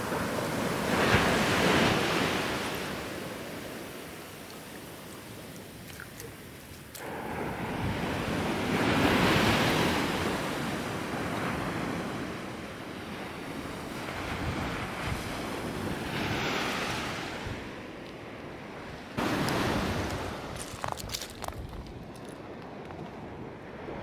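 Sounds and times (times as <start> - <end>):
ocean surf breaking: 0.0 - 17.8
wind rumbling on microphone: 0.0 - 24.0.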